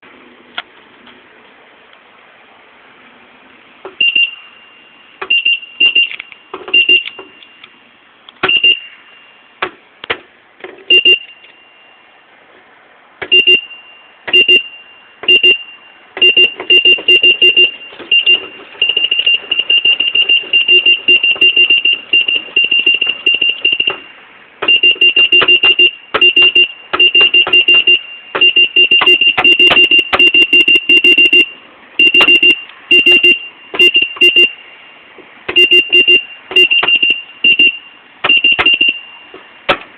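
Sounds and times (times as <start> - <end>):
electronic beeper short beeps: 4.0 - 7.6, 8.5 - 9.5, 13.3 - 24.1, 24.7 - 34.6, 35.6 - 39.3.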